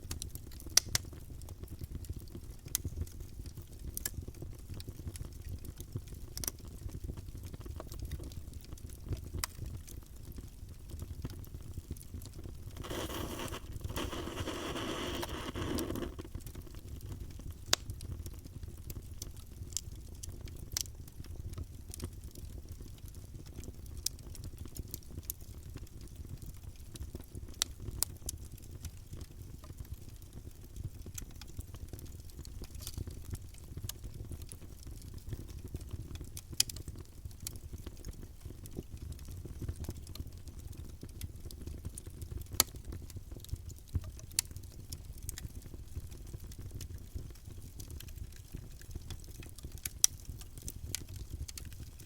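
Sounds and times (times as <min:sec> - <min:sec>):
fire crackling and popping: 0:00.0 - 0:52.0
flames rumbling: 0:12.7 - 0:16.4
soft hiss: 0:12.7 - 0:16.5.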